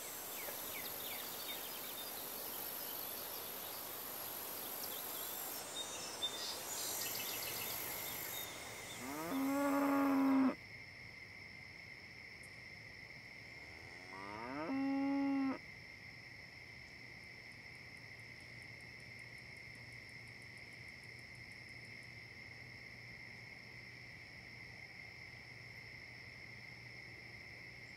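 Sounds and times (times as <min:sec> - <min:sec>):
cattle mooing: 0:09.0 - 0:10.6, 0:14.0 - 0:15.6.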